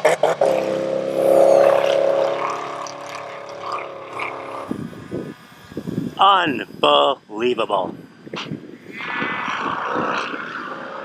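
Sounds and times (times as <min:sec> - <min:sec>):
off-road vehicle engine running: 0:00.0 - 0:06.5.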